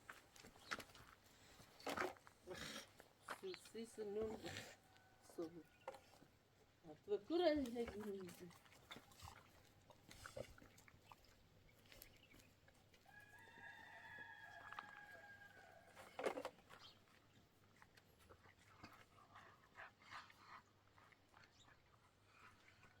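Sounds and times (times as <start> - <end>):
faint rooster crowing: 13.0 - 16.2.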